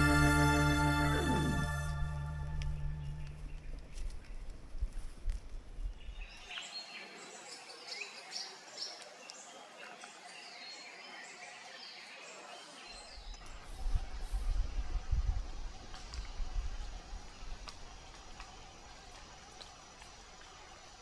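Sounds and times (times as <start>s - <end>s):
forest birds chirping: 0.0s - 4.7s
low rumble: 0.0s - 4.8s.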